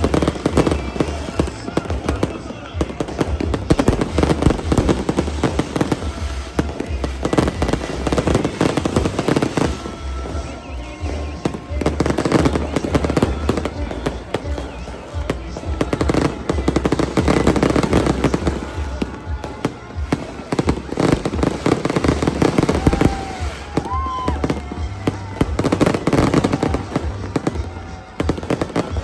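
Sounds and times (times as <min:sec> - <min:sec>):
firework whistles: 0:00.0 - 0:29.0
fireworks crackling and banging: 0:00.0 - 0:29.0.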